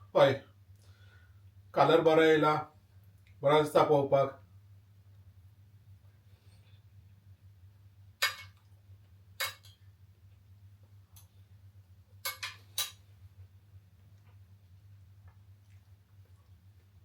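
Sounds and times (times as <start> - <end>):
faint low hum: 0.0 - 17.0
metal spoon clinking on plate: 8.2 - 8.6, 9.4 - 9.8, 12.2 - 13.0.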